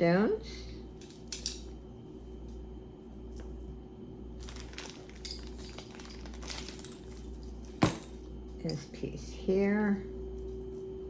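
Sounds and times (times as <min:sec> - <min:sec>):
jewelry clinking and rustling: 0:00.9 - 0:02.5, 0:03.1 - 0:09.0.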